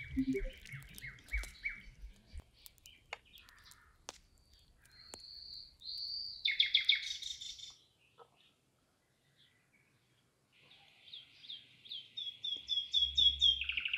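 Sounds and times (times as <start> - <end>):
birds chirping and whistling: 0.0 - 2.0, 4.9 - 7.7, 12.0 - 13.9
faint sharp clicks: 0.0 - 6.2.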